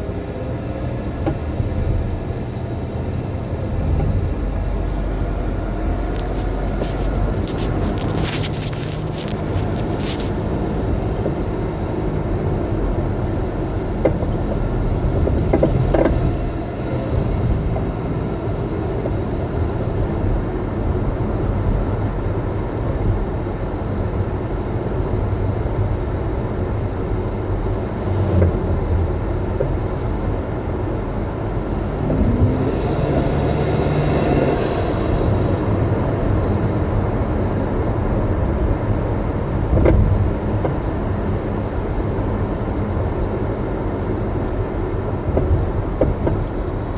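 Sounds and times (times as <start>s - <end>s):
road noise: 0.0s - 46.9s
suspension knocks: 14.0s - 16.4s, 45.3s - 46.6s.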